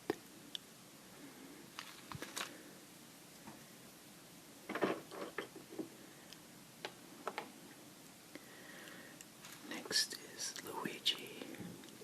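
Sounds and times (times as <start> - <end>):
rustling: 1.3 - 2.8, 9.4 - 12.0.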